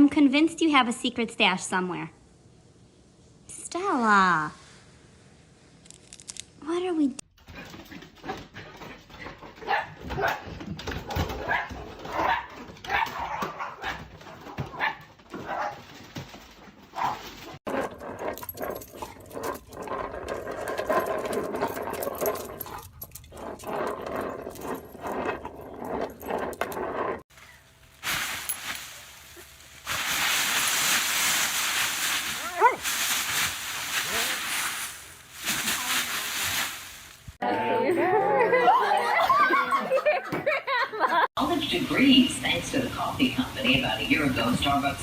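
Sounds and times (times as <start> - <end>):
steady hiss: 27.9 - 37.4
dog whining and barking: 32.4 - 32.8.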